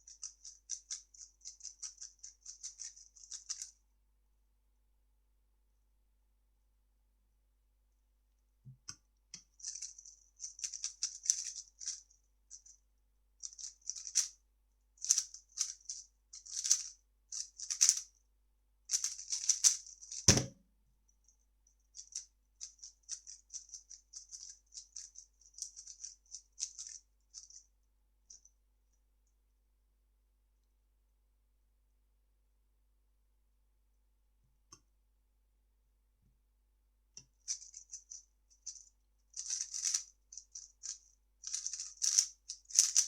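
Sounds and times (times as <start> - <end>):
thud: 20.3 - 20.6.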